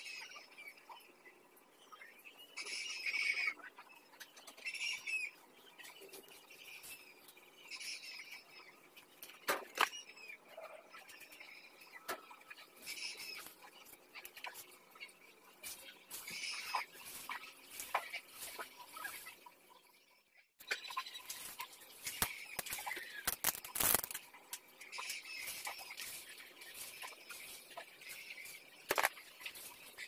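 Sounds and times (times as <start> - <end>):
high chirping: 9.9 - 19.8, 20.6 - 30.0.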